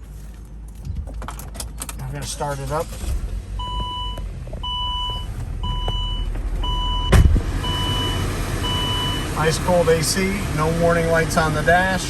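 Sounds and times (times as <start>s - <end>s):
car engine idling: 0.0s - 12.0s
loud thump: 7.0s - 7.5s.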